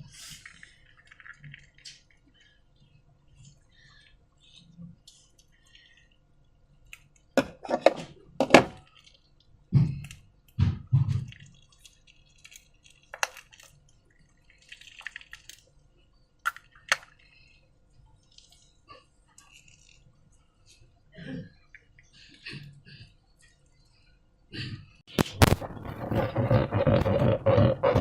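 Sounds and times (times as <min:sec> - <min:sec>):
wet slime squelching: 0:00.0 - 0:20.9.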